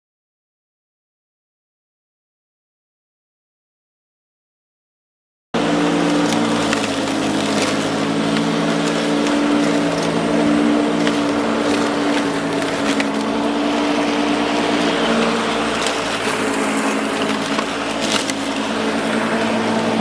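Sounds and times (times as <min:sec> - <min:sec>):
wood chipper humming: 0:05.6 - 0:20.0
wood splintering cracks: 0:05.6 - 0:20.0.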